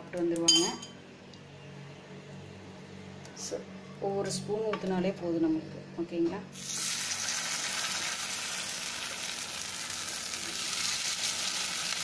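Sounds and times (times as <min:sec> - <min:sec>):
batter sizzling in oil: 0:06.6 - 0:12.0.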